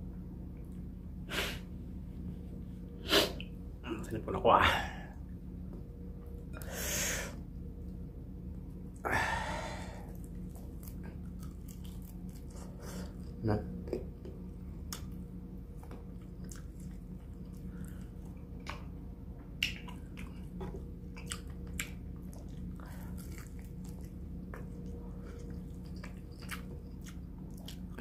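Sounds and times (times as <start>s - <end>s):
steady low hum: 0.0s - 28.0s
person chewing crunchy chicken: 10.0s - 13.4s, 14.3s - 18.9s, 19.6s - 28.0s.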